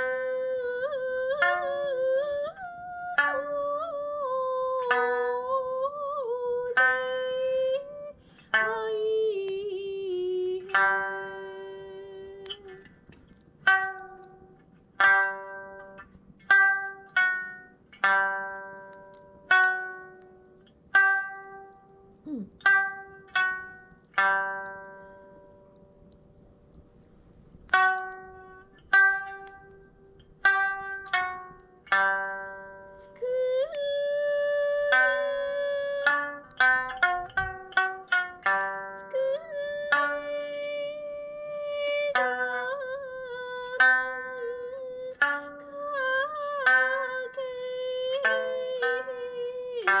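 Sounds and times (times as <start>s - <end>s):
sustained wavering melody: 0.0s - 12.9s, 27.7s - 50.0s
plucked lute notes: 0.0s - 50.0s.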